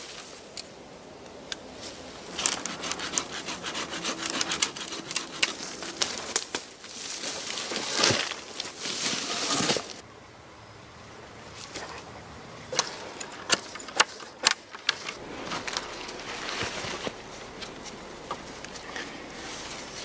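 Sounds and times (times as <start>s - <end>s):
faint forest background: 0.0s - 20.0s
dry twigs cracking: 4.2s - 10.0s.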